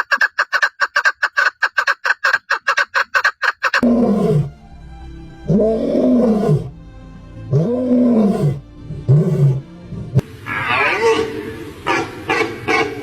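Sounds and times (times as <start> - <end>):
big cat roaring: 3.8 - 4.6, 5.5 - 6.8, 7.5 - 11.3.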